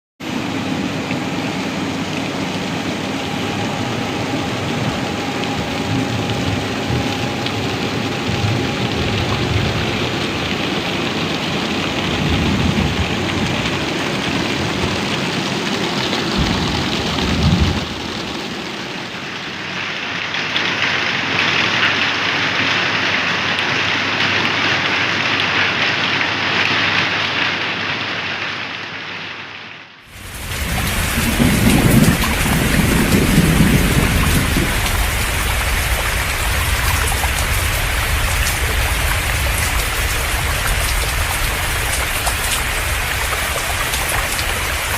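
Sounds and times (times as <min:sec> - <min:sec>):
heavy rain pouring: 0:00.2 - 0:44.9
low rumbles: 0:30.1 - 0:44.9.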